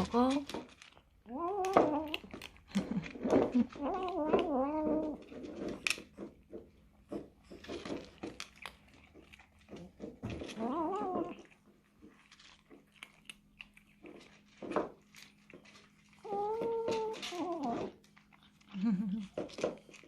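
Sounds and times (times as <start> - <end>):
cat chewing wetly: 0.5 - 20.0
cat wavering call: 16.2 - 18.0.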